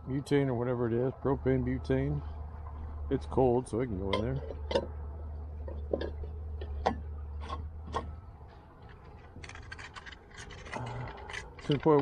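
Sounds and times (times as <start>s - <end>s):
low steady hum: 0.0s - 12.0s
crinkly rattling clicks: 8.8s - 12.0s.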